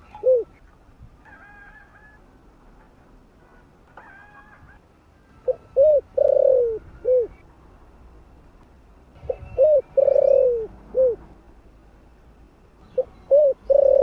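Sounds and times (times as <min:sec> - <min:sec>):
dove cooing: 0:00.0 - 0:00.6, 0:05.3 - 0:07.4, 0:09.2 - 0:11.3, 0:13.0 - 0:14.0.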